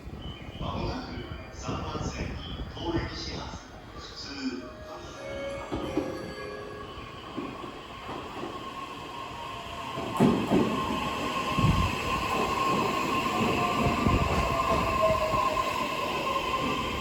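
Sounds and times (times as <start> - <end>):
train wheels rumbling on rails: 7.1 - 17.0.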